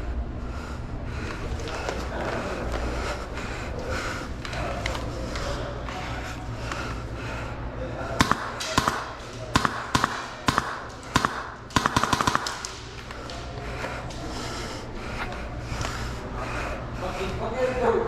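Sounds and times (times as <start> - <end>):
low background murmur: 0.0 - 18.0
airsoft gun shots: 8.2 - 13.0.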